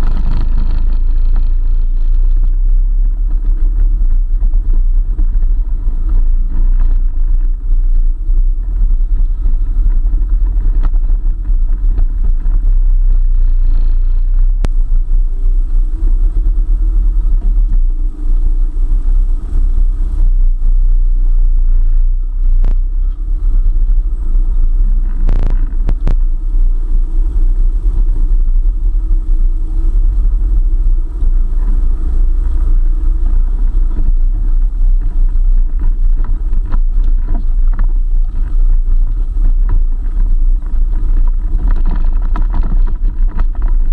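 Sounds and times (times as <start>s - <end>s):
engine and road rumble: 0.0s - 43.9s.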